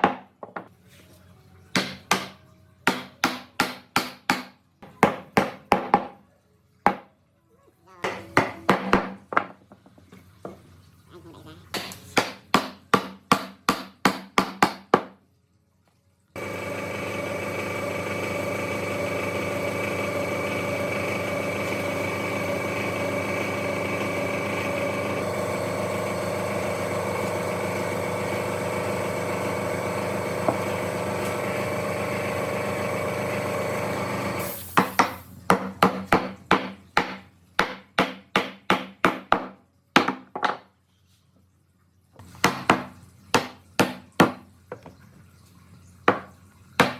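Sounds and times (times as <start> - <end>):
rapid hammering on wood: 1.8 - 6.2, 11.8 - 15.2, 35.5 - 40.5, 42.4 - 44.4, 46.1 - 46.9
power tool running: 16.4 - 35.5.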